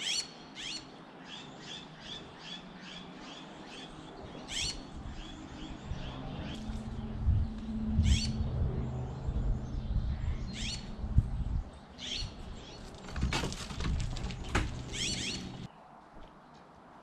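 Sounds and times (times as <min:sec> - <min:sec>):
songbird chirping: 0:14.3 - 0:16.7.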